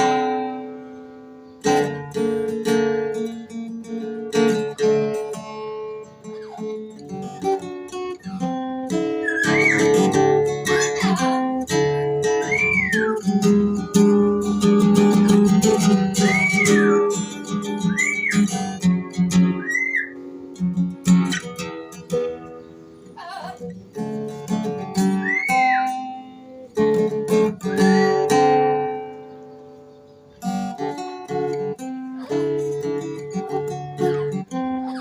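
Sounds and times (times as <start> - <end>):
acoustic guitar strumming: 0.0 - 35.0
rising and falling whistles: 9.2 - 10.0, 12.4 - 13.3, 16.2 - 17.0, 17.7 - 18.5, 19.6 - 20.2, 25.2 - 25.9.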